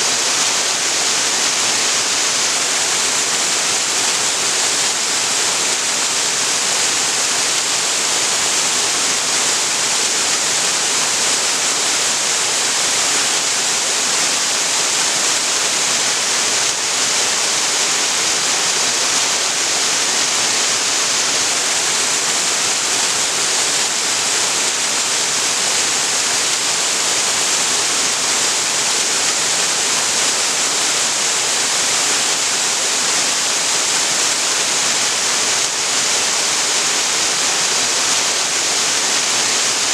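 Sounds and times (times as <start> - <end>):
waterfall splashing into creek: 0.1 - 39.9.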